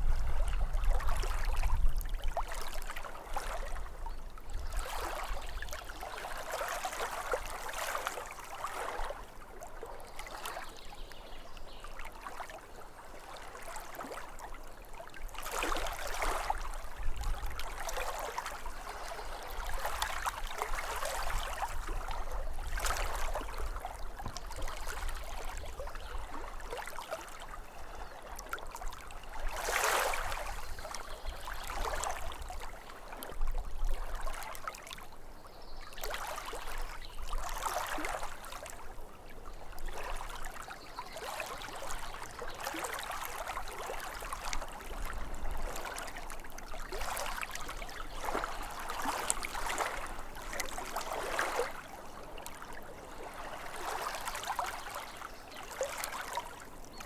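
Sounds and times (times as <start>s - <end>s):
small waves lapping at shore: 0.0s - 57.0s.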